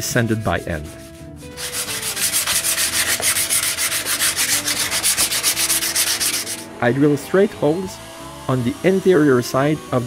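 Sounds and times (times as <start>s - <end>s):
sandpaper rubbing on wood: 0.8s - 6.7s.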